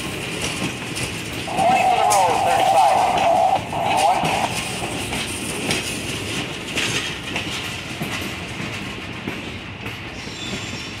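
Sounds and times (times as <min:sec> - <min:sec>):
passing hopper cars: 0:00.0 - 0:11.0
train wheels clacking over joints: 0:00.0 - 0:11.0.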